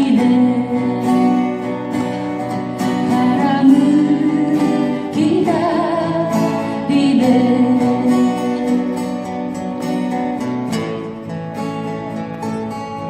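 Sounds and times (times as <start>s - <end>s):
person singing: 0.0s - 9.5s
acoustic guitar: 0.0s - 13.0s.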